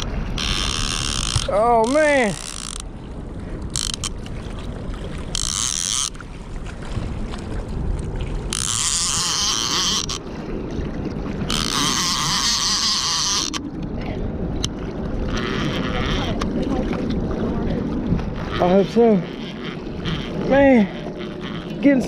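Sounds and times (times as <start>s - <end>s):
wind buffeting microphone: 0.0s - 22.0s
rushing floodwater: 12.8s - 22.0s.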